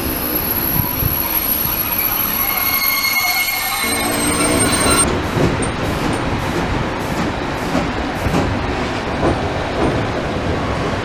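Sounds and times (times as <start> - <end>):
high wheel squeal: 0.0 - 5.1
train rolling rumble: 0.0 - 11.0.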